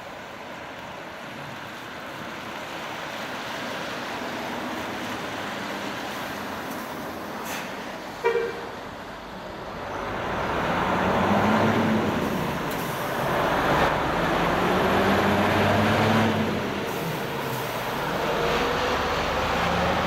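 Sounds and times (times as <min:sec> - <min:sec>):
coach diesel engine and tyres: 0:00.0 - 0:20.0
horn toot: 0:08.2 - 0:08.7.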